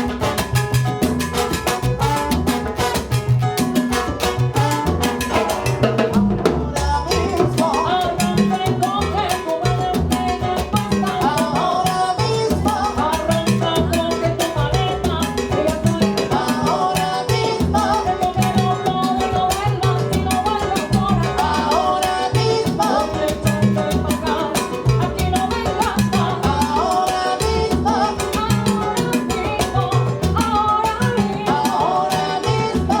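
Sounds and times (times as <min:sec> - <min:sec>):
salsa band playing: 0:00.0 - 0:33.0
person singing: 0:06.5 - 0:08.2, 0:16.3 - 0:19.4, 0:21.2 - 0:24.6, 0:26.2 - 0:29.4, 0:31.2 - 0:33.0.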